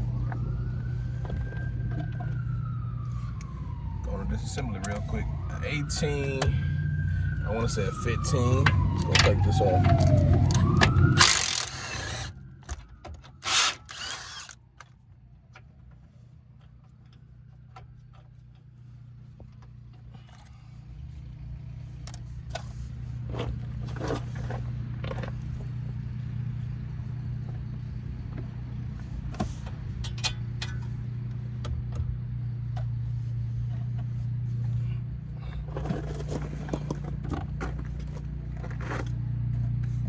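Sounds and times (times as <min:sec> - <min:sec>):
hand tools clicking on metal: 0:11.2 - 0:12.3, 0:13.4 - 0:14.6
impact wrench bursts: 0:11.2 - 0:12.4, 0:13.4 - 0:14.6.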